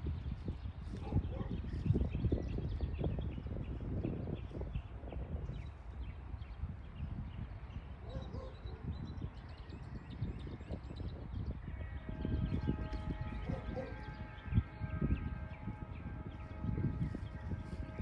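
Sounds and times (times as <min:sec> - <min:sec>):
held chord of horn tones: 0:11.6 - 0:18.0
freight train rumbling: 0:12.0 - 0:18.0.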